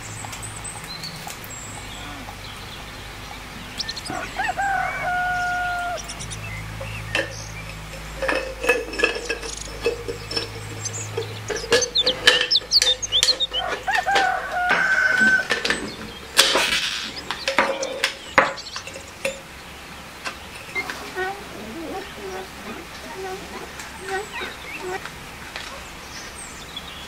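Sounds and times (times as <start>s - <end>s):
chickens clucking: 0.0s - 26.5s
rooster crowing: 3.8s - 6.3s, 11.5s - 15.9s
small metal and glass parts clicking: 6.0s - 19.5s.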